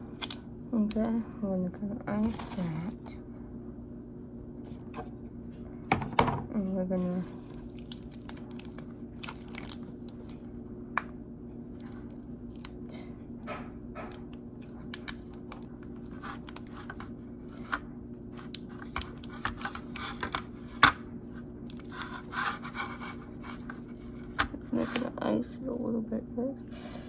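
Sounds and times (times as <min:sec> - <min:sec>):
steady low hum: 0:00.0 - 0:27.0
small clicks and crinkles: 0:07.2 - 0:21.0, 0:21.6 - 0:25.1.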